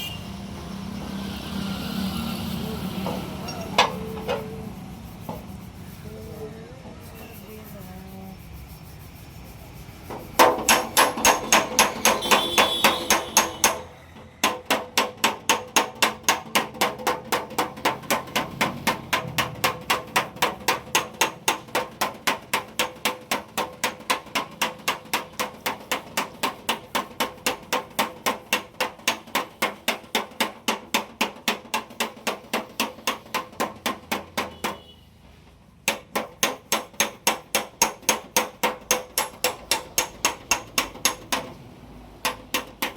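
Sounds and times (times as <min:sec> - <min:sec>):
hammer striking sheet metal: 0:10.1 - 0:35.0, 0:35.8 - 0:41.6, 0:42.2 - 0:42.9.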